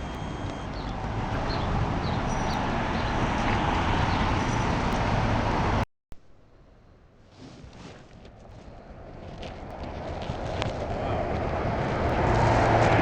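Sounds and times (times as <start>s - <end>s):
bicycle road noise: 0.0s - 5.8s, 7.3s - 13.0s
wind rushing over microphone: 7.6s - 13.0s.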